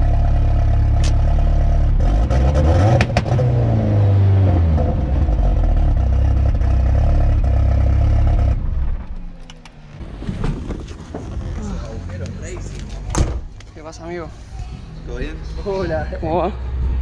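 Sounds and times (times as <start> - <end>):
car engine running: 0.0 - 10.2.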